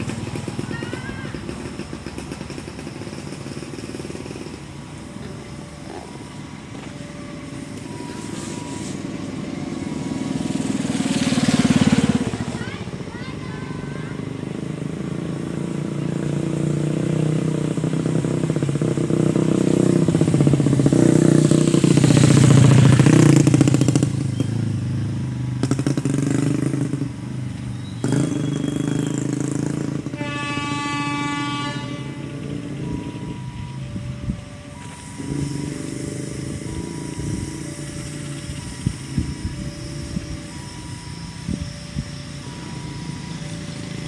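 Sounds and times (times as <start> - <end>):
diesel locomotive engine running: 0.0 - 44.0
train horn: 30.0 - 33.1.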